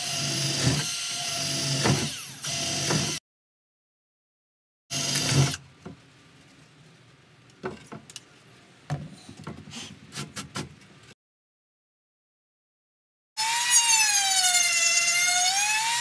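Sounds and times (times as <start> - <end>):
cordless drill drilling into wood: 0.0 - 3.2, 4.9 - 5.6, 13.4 - 16.0.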